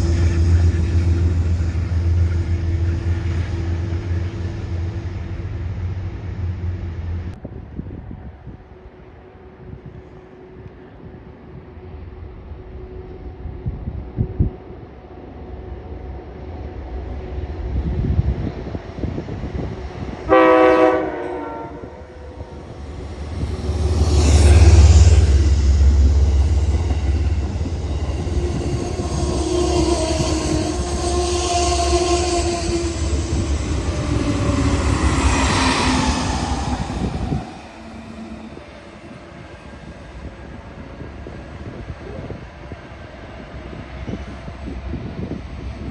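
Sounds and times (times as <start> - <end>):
train rumble: 0.0 - 45.9
train horn blast: 20.0 - 37.2.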